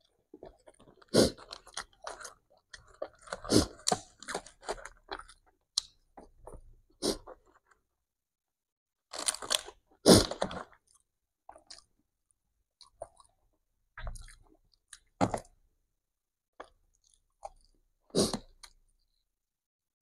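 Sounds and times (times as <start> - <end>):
chewing and crunching: 0.0 - 6.6, 9.1 - 12.0, 12.8 - 15.5, 16.6 - 18.8.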